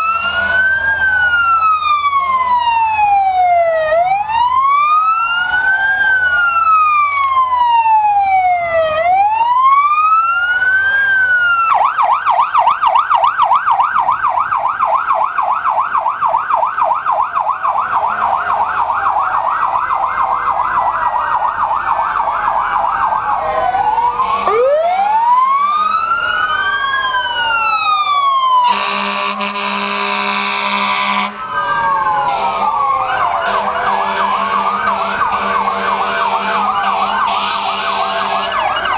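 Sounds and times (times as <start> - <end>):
emergency siren wailing and yelping: 0.0 - 38.9
loud steady horn blast: 24.2 - 24.6, 28.6 - 31.5, 32.3 - 32.8, 33.4 - 38.6.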